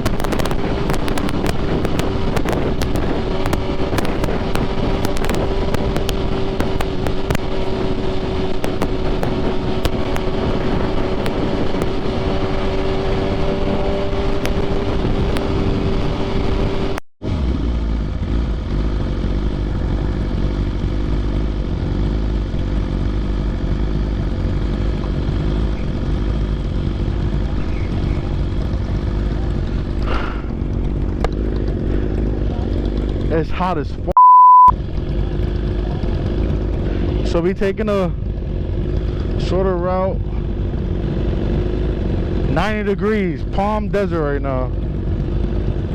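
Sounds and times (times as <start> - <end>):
wind rushing: 0.0 - 17.0
low wind rumble: 0.0 - 34.1
sport bike engine cruising: 0.0 - 34.1, 34.7 - 45.9.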